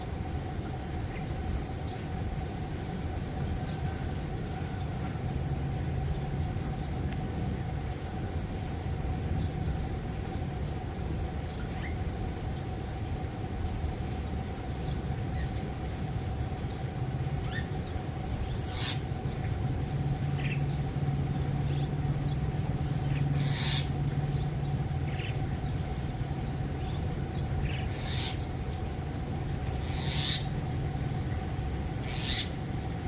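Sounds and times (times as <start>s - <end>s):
steady low hum: 0.0s - 33.0s
birds calling: 8.5s - 33.0s.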